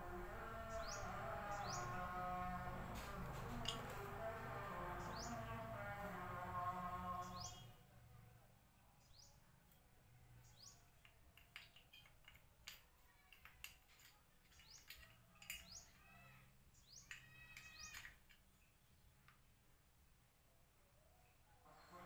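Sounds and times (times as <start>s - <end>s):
low steady hum: 0.0s - 9.0s
bird chirps: 7.2s - 7.8s.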